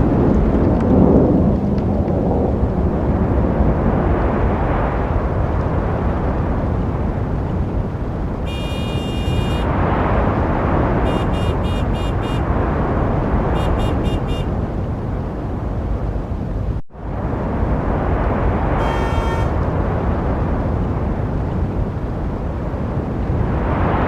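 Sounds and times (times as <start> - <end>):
road traffic rumble: 0.0 - 24.0
car horns honking: 8.4 - 9.7, 11.0 - 12.5, 13.5 - 14.6, 18.8 - 19.6.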